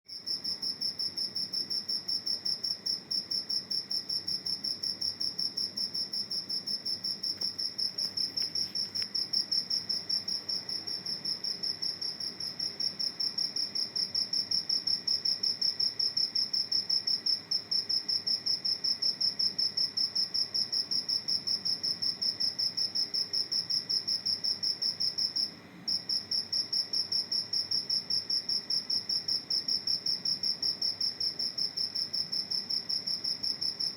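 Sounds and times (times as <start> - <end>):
cricket chirping: 0.1 - 33.9.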